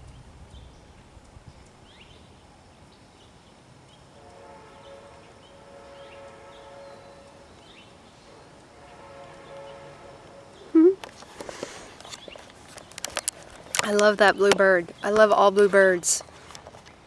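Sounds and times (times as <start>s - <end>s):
distant train horn: 4.1s - 10.7s.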